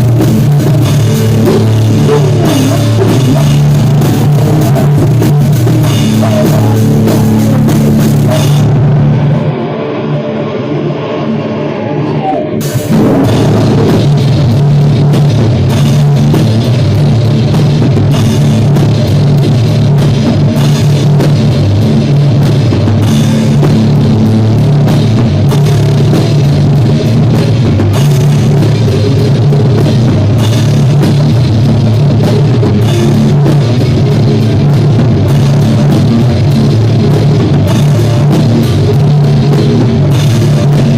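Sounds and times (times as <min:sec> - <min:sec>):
rock band playing: 0:00.0 - 0:40.9.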